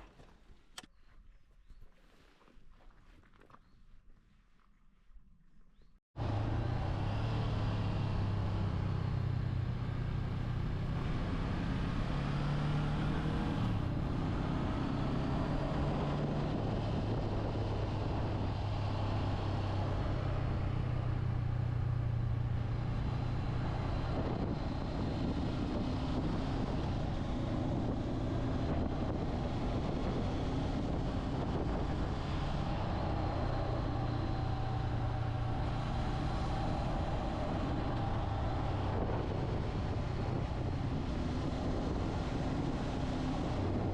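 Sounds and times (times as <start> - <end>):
motorcycle engine hum: 5.6 - 43.9.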